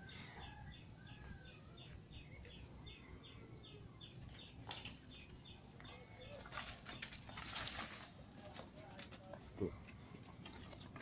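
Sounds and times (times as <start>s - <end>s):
small bird chirping: 0.0s - 7.8s.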